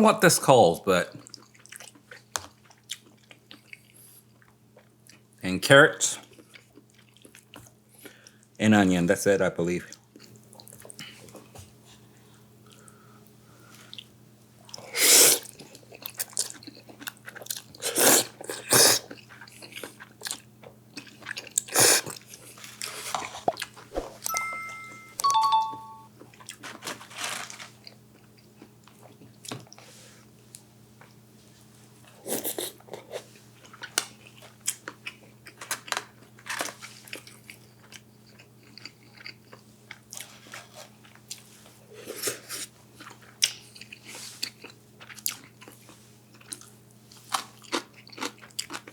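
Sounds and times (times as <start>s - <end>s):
chewing and crunching: 1.2s - 5.4s, 6.2s - 8.5s, 9.9s - 11.6s, 13.6s - 23.9s, 26.3s - 29.8s, 32.1s - 48.9s.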